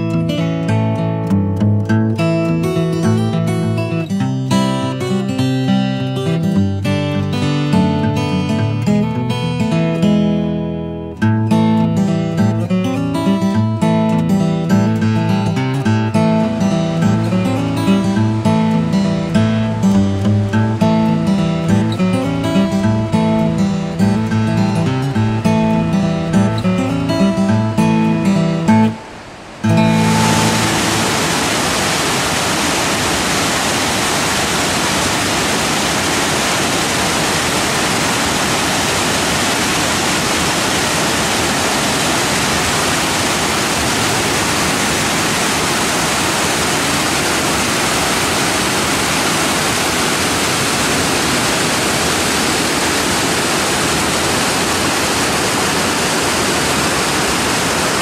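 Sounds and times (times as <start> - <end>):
acoustic guitar music: 0.0 - 32.3
water rushing over rock: 28.7 - 58.0.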